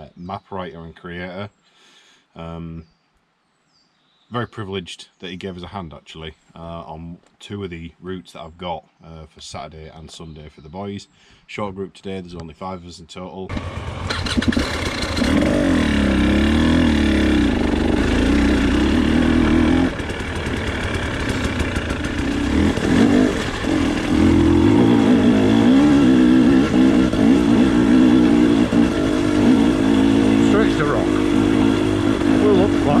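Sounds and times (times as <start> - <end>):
motorcycle engine revving: 13.5 - 33.0.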